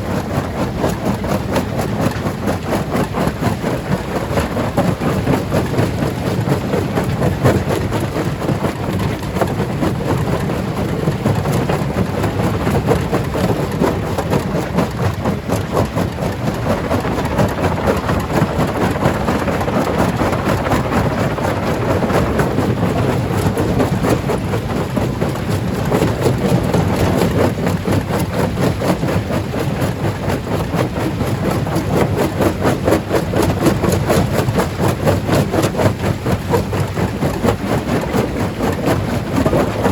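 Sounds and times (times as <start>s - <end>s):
stone-crushing machinery rumbling: 13.2s - 29.0s.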